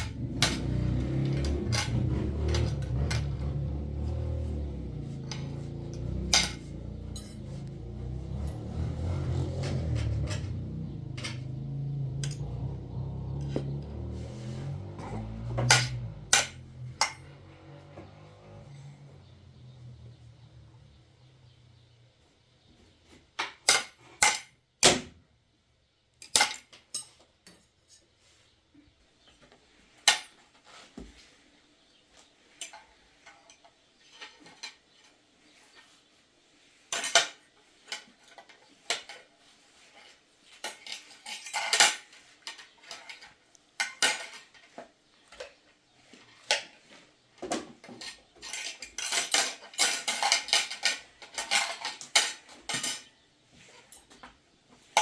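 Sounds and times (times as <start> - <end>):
hard objects clinking together: 5.0 - 8.7, 47.8 - 53.1.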